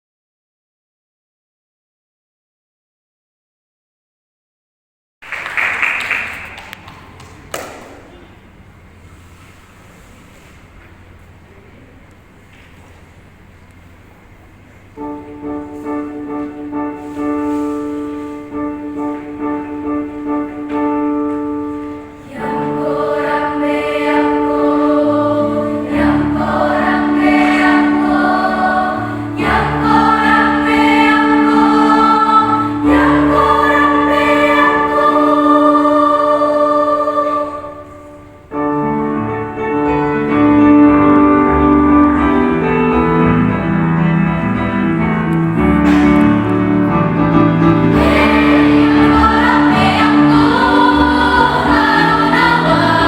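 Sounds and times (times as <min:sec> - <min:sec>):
choir singing: 0:22.2 - 0:38.5, 0:46.8 - 0:53.0.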